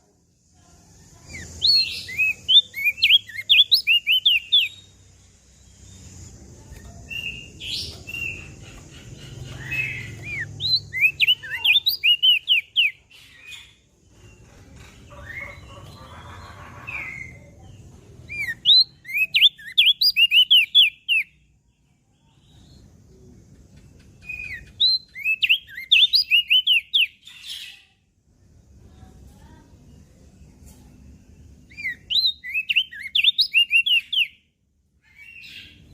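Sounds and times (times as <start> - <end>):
white-eye bird chirping: 1.2 - 5.0, 5.6 - 14.4, 15.0 - 21.4, 23.8 - 27.7, 31.7 - 34.4.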